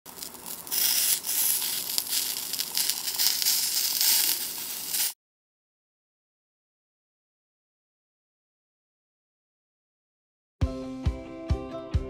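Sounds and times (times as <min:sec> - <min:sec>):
chicken sizzling in oil: 0:00.0 - 0:05.2.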